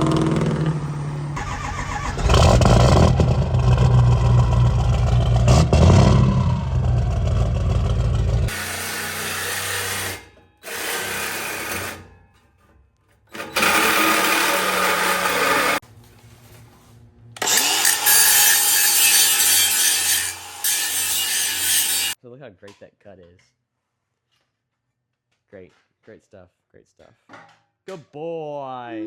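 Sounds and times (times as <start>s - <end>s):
power tool cutting metal tubing: 8.5s - 12.1s, 13.3s - 15.8s, 17.4s - 22.2s.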